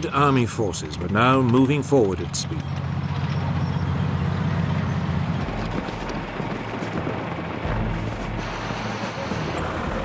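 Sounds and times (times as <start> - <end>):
heavy vehicle engines rumbling: 0.0 - 10.0
steady noisy wash: 7.2 - 10.0.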